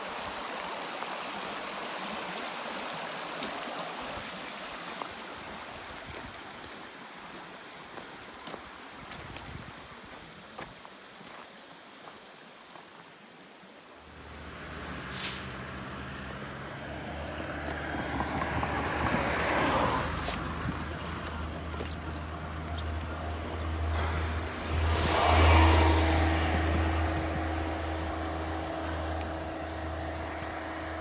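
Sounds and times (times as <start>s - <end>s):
low engine hum: 14.0s - 31.0s
vehicles passing: 14.0s - 31.0s.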